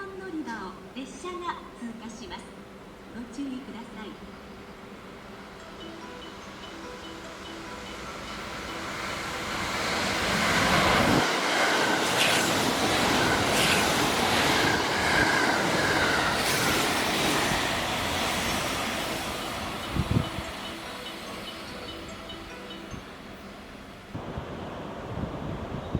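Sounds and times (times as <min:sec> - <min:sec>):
train passing with high whine: 0:00.0 - 0:25.9
train wheels clacking: 0:05.8 - 0:23.1.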